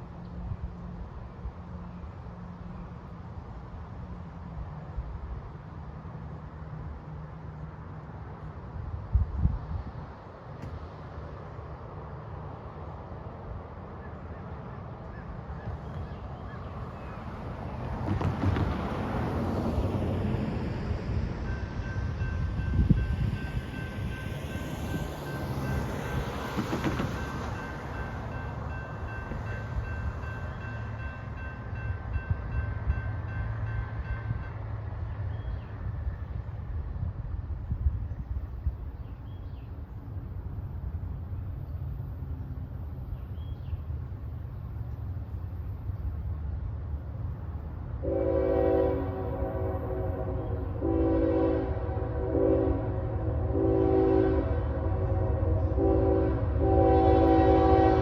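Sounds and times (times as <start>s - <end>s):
train rumbling: 0.0s - 58.0s
locomotive air horn blasts: 48.0s - 58.0s.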